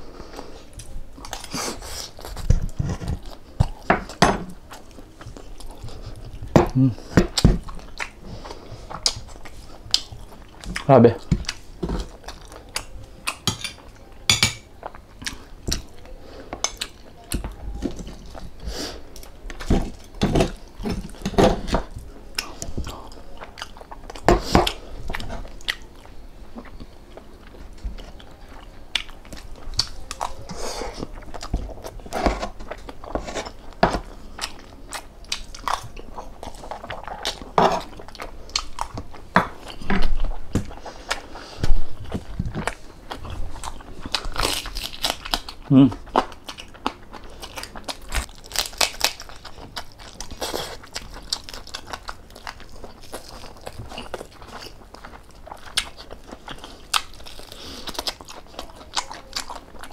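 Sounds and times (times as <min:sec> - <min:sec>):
person chewing and crunching food: 0:00.0 - 0:59.9.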